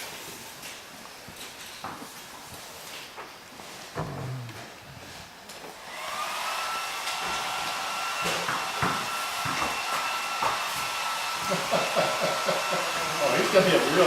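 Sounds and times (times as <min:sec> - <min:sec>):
hair dryer motor whine: 0:05.7 - 0:14.0
rush of blowing air: 0:05.8 - 0:14.0.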